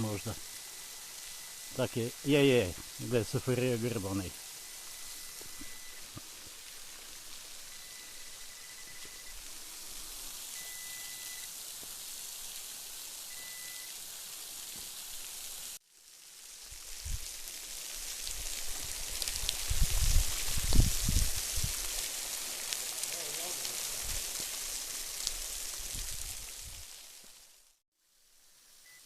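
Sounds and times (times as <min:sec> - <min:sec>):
metal detector high tone: 0:00.0 - 0:06.1, 0:07.7 - 0:09.4, 0:10.5 - 0:11.5, 0:13.3 - 0:13.9
waterfall rushing: 0:00.0 - 0:15.8, 0:21.8 - 0:25.8.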